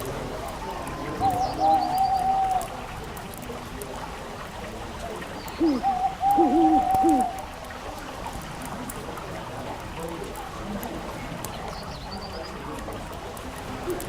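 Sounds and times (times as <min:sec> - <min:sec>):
fireplace fire crackling: 0:00.0 - 0:14.0
hooting bird calls: 0:00.5 - 0:02.9, 0:05.4 - 0:07.5.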